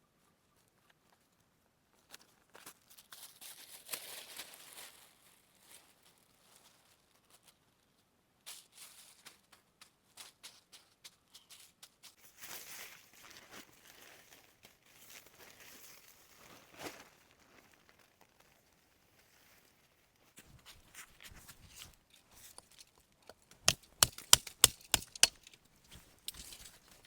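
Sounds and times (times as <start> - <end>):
material crinkling and rustling: 12.2 - 27.0.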